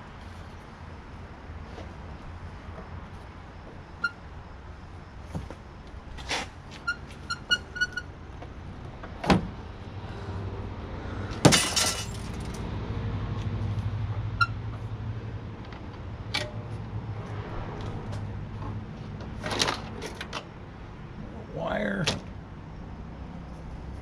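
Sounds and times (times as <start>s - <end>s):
metal parts clinking: 11.6s - 12.6s.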